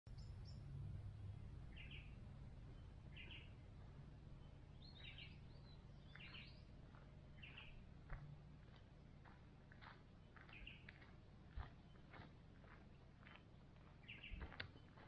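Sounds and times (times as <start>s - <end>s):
low steady rumble: 0.1s - 15.0s.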